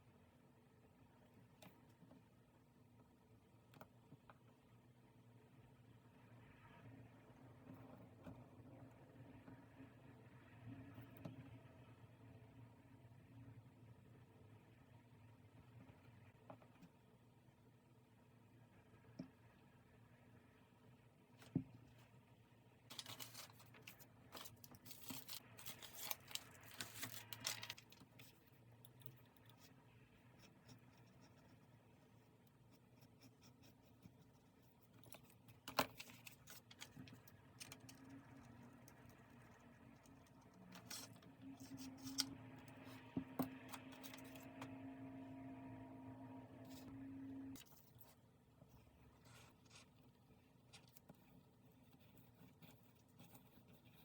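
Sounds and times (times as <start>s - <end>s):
faint steady hum: 0.0s - 54.0s
paper rustling and tearing: 22.9s - 28.3s.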